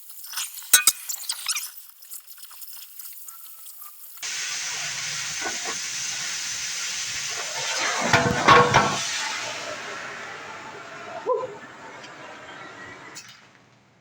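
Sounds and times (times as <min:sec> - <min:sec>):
crackling and popping of cut steel: 0:00.5 - 0:01.7
cutting torch hissing: 0:03.0 - 0:13.5.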